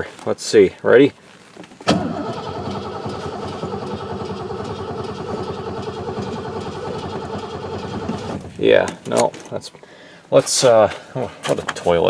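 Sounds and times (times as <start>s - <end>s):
starter cranking engine: 1.9s - 8.5s.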